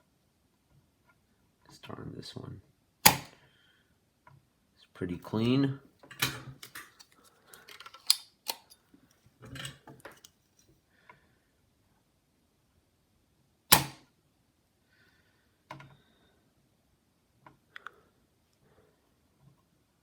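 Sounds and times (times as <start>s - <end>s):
solder sucker plunger snap: 13.7s - 14.0s.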